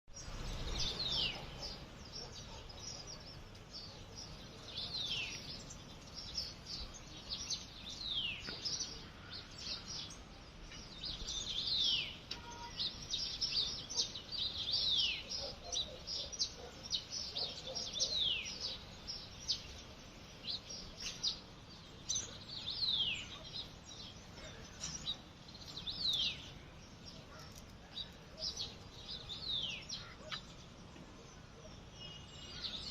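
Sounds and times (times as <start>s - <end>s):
birds chirping: 0.1s - 32.9s.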